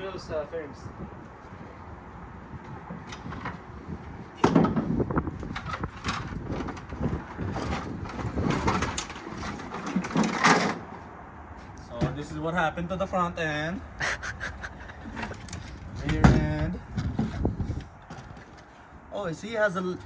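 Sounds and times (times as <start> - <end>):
body panels knocking and clattering: 4.4 - 10.9, 15.3 - 18.7.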